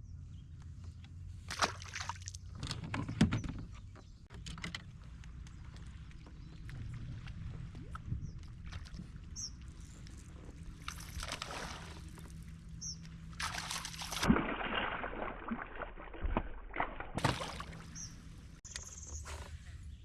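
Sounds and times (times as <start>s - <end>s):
water sloshing and splashing: 1.4s - 3.2s, 4.6s - 18.6s
knocks and rustles on hull: 2.5s - 9.2s
bird chirps: 12.8s - 13.1s, 17.8s - 19.3s.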